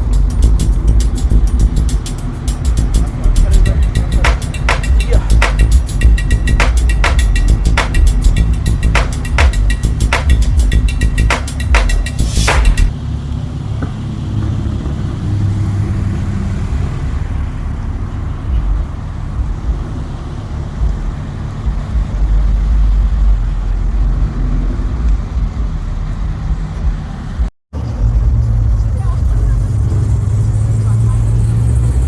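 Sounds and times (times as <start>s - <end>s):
car engine: 0.0s - 32.0s
road rumble: 0.0s - 32.0s.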